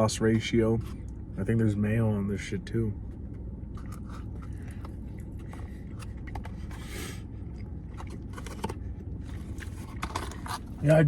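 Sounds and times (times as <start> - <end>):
person chewing a sandwich: 3.2 - 10.8
scraping and clicking handling noises: 7.9 - 11.0.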